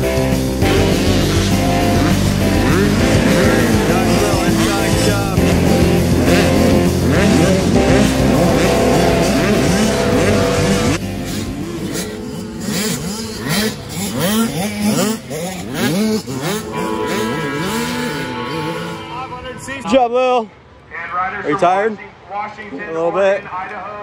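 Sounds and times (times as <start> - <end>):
loud music: 0.0 - 12.3, 15.7 - 20.1
motocross bikes revving: 0.0 - 20.0.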